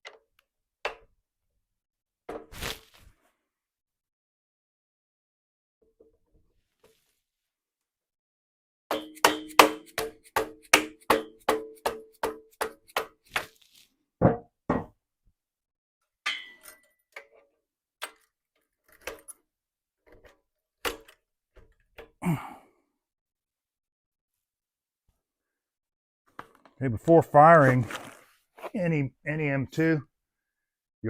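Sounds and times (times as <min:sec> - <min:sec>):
dull metal knocks: 0:14.2 - 0:14.9
ringing metallic taps: 0:16.3 - 0:16.8.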